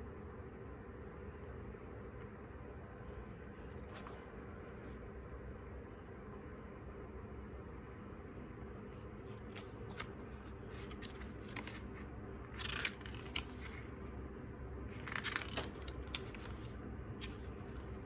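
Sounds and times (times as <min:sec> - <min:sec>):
steady low hum: 0:00.0 - 0:18.0
packaging rustling or tearing: 0:12.5 - 0:13.8, 0:15.0 - 0:16.7.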